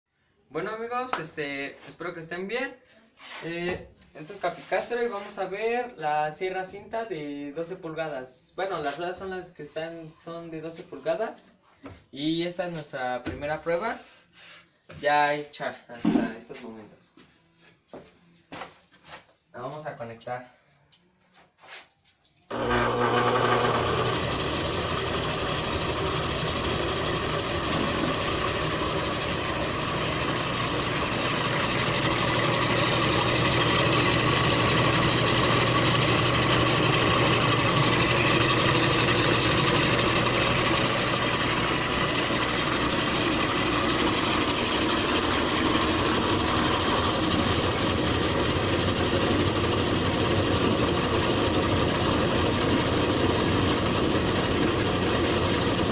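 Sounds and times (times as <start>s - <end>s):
bandsaw running: 22.5s - 55.9s
electric motor hum: 22.5s - 55.9s.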